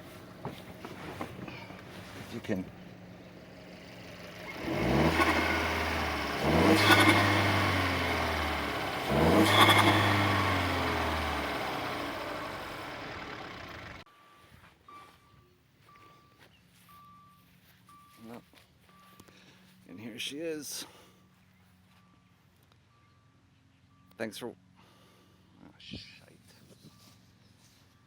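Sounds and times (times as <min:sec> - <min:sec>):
turbo engine revving: 0:00.0 - 0:14.1
faint beeps: 0:14.1 - 0:19.7.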